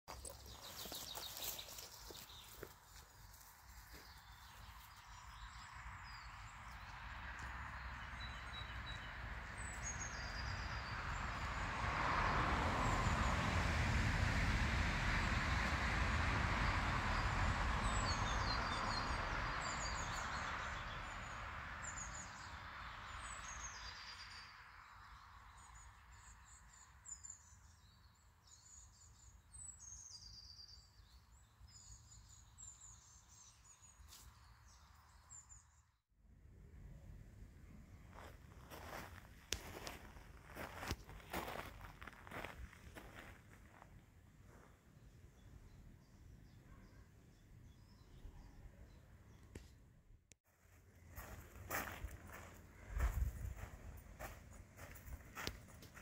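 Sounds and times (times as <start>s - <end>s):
songbirds chirping: 0.1s - 13.5s, 16.6s - 36.0s, 36.7s - 49.9s, 50.8s - 56.0s.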